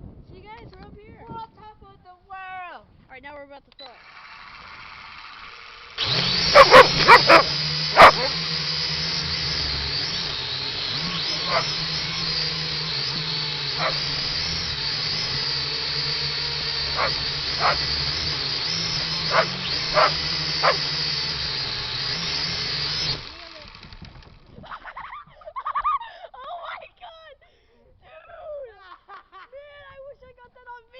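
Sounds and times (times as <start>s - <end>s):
drone propellers whirring: 3.9s - 24.4s
dog barking: 6.5s - 8.4s, 11.5s - 11.7s, 13.8s - 14.0s, 17.0s - 17.8s, 19.3s - 20.8s.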